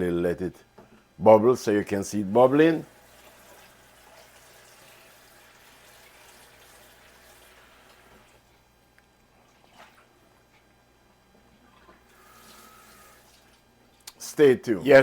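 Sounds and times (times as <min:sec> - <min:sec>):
stew bubbling in a pot: 0:02.8 - 0:08.5.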